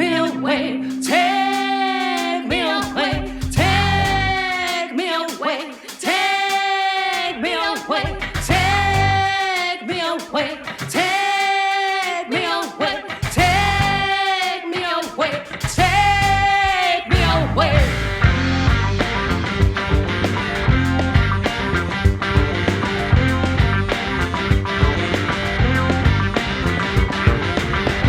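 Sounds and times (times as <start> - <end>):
band with bass drums and guitar: 0.0 - 4.9, 7.8 - 9.7, 10.3 - 12.1, 12.9 - 28.0
woman singing long notes: 0.0 - 5.3.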